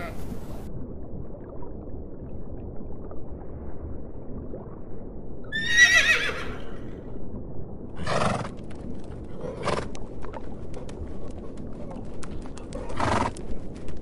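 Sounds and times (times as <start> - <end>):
horse whinnying: 5.5 - 6.9.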